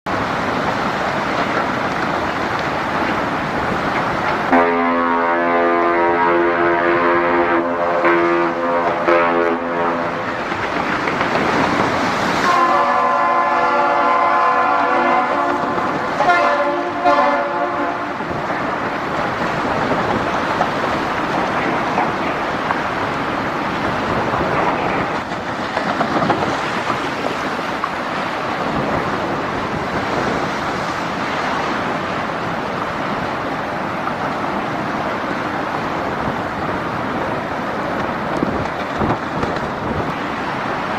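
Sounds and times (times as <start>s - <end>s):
steady rushing noise: 0.1s - 40.9s
horn blasts sounding a chord: 4.5s - 10.3s, 12.4s - 18.2s.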